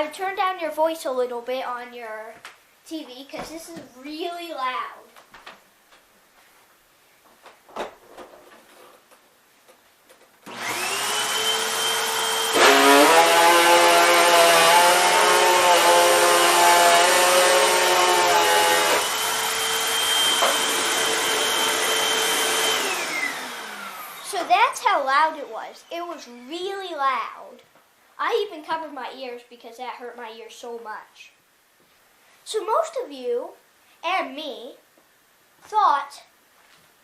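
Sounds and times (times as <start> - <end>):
vacuum motor whine: 10.5 - 24.4.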